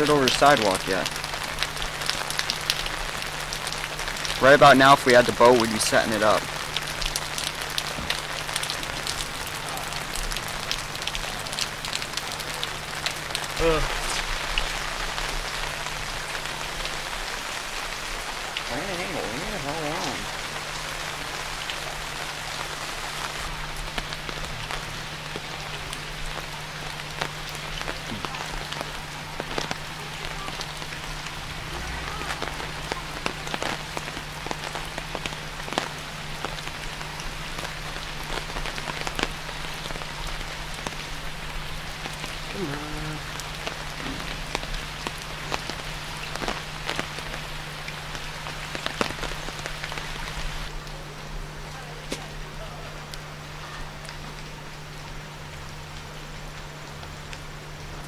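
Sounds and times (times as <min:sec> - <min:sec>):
rain falling on water: 0:00.0 - 0:58.0
raindrops ticking close by: 0:00.0 - 0:58.0.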